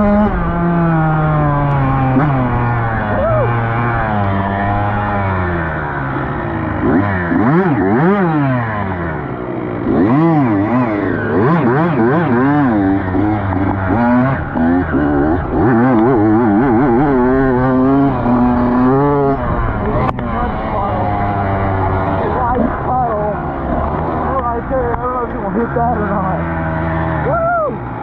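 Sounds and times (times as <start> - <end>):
dirt bike engines revving: 0.0 - 28.0.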